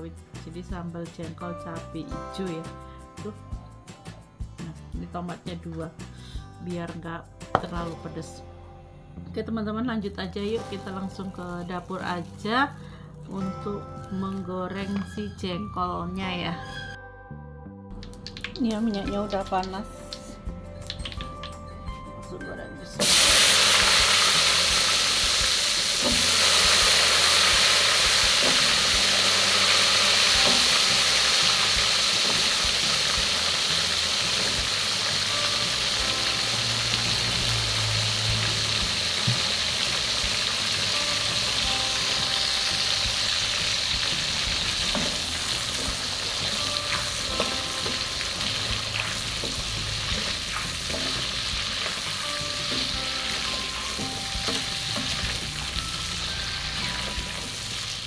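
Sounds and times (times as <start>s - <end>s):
food deep-frying in hot oil: 20.8s - 21.5s, 23.0s - 58.0s.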